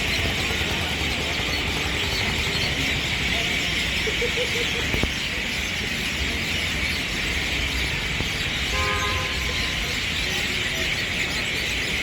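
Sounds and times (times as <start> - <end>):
flock of birds chattering: 0.0 - 12.0
vehicle horn honking: 8.7 - 9.6.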